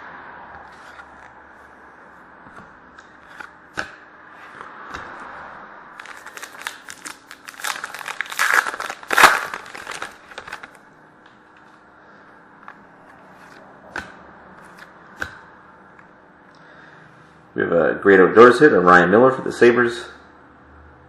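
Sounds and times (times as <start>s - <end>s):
plastic wrapper crinkling and tearing: 6.0s - 10.8s.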